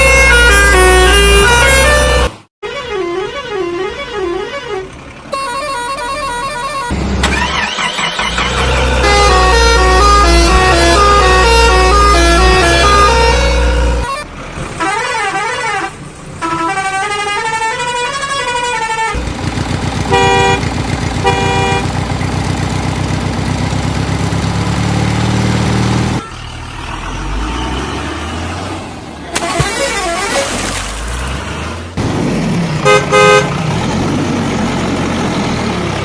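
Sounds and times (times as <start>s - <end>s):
engine rumble: 3.7s - 14.9s, 19.1s - 36.0s
short horn honks: 8.6s - 14.2s, 20.1s - 22.0s.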